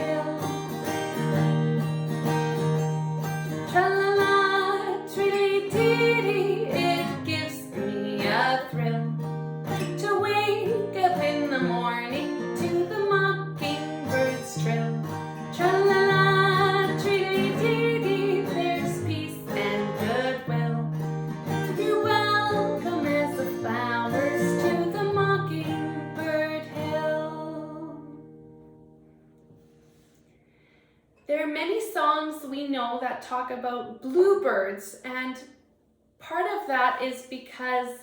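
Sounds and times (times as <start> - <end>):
woman singing: 0.0 - 0.8, 3.6 - 9.2, 9.8 - 28.2
strummed acoustic guitar: 0.0 - 30.4.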